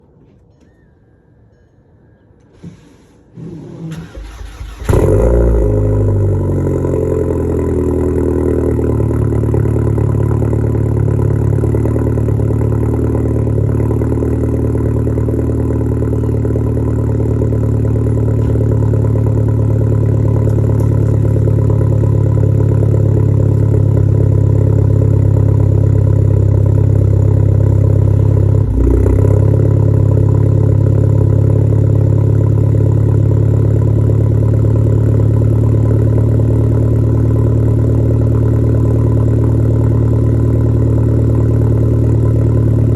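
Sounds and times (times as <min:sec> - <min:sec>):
engine starter cranking: 0:03.6 - 0:05.4
loud engine idle: 0:06.0 - 0:42.9.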